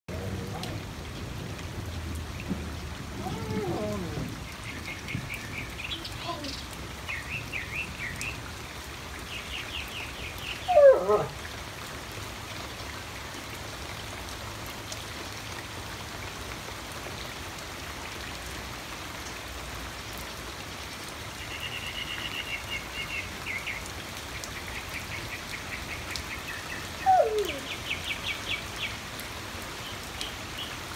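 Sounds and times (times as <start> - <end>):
rain falling on water and patio: 0.1 - 30.9
birds chirping: 3.7 - 8.4.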